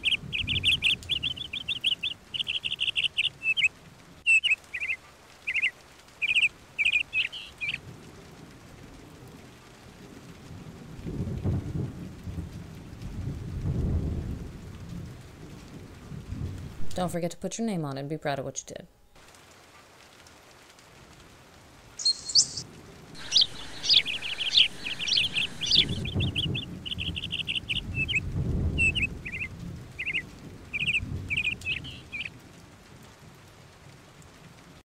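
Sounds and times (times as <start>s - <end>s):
thunder rumbling: 0.0s - 3.5s, 10.0s - 17.0s, 22.0s - 33.9s
birds chirping in trills: 0.0s - 7.8s, 22.0s - 22.6s, 23.2s - 28.2s, 28.8s - 32.3s.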